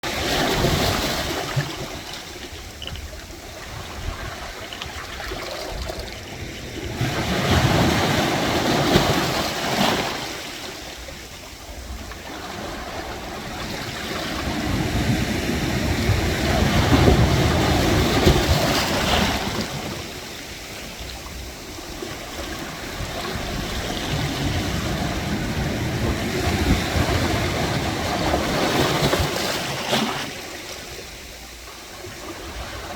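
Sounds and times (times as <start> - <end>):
waves washing among concrete blocks: 0.0 - 32.9.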